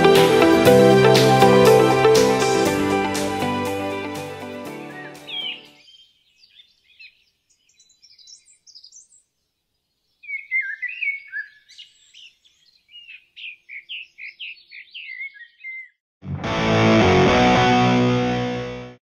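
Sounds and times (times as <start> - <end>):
bird chirping and whistling: 4.9 - 6.0, 10.2 - 12.3, 13.0 - 15.9.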